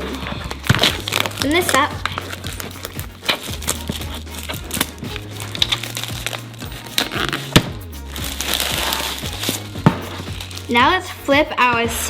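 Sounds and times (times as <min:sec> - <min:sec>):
plastic packaging clicks and crackles: 0:00.0 - 0:07.6
soft background music: 0:00.0 - 0:12.0.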